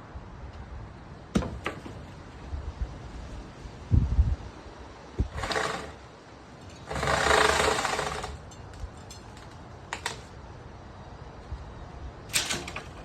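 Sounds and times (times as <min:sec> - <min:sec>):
electric chainsaw running: 0:05.3 - 0:06.0, 0:06.8 - 0:08.4.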